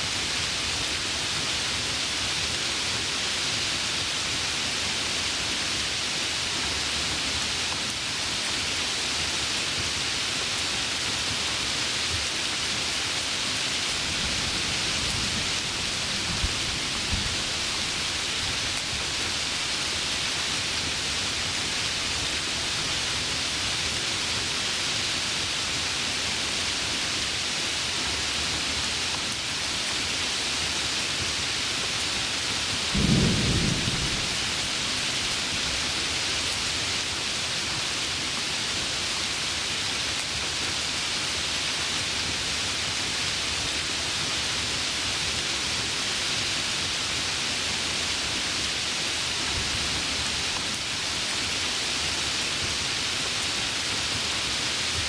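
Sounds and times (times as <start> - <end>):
heavy rain: 0.0 - 55.0
low thunder clap: 32.9 - 34.6.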